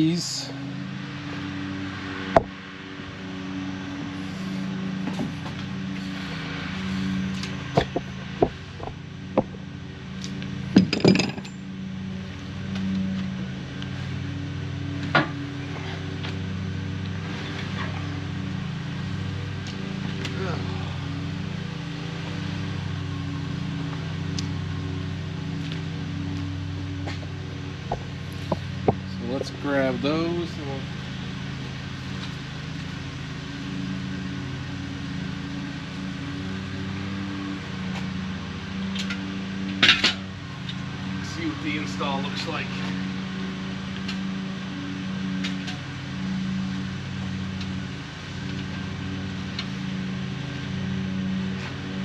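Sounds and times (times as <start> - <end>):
engine idling: 0.0 - 52.0
low machine hum: 0.0 - 52.0
metal parts clinking: 10.8 - 11.6.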